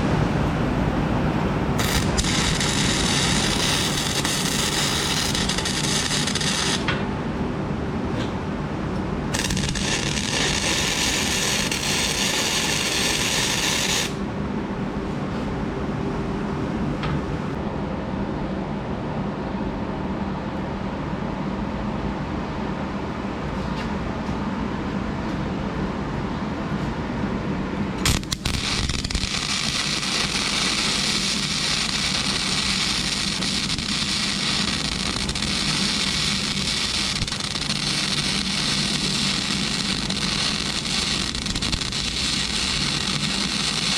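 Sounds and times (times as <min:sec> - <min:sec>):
steady low hum: 0:00.0 - 0:43.9
welding arc crackling: 0:01.8 - 0:07.0, 0:09.3 - 0:14.2, 0:28.0 - 0:43.9.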